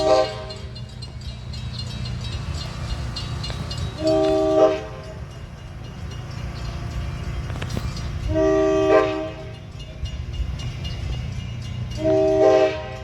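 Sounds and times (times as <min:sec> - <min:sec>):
locomotive air horn: 0:00.0 - 0:00.7, 0:03.9 - 0:05.2, 0:07.7 - 0:09.6, 0:11.9 - 0:13.0
moving train rumble: 0:00.0 - 0:13.0.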